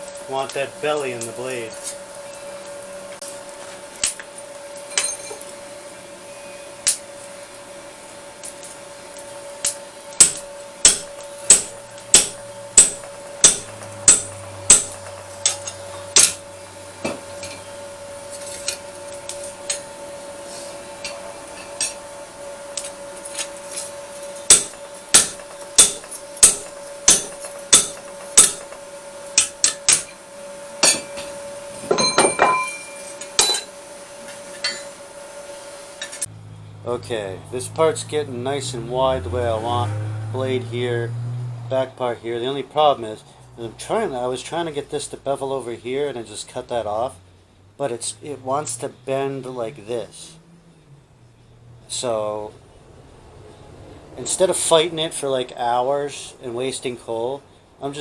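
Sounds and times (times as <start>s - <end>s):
steady hum: 0.0s - 41.0s
hammer striking steel on anvil: 8.5s - 35.1s.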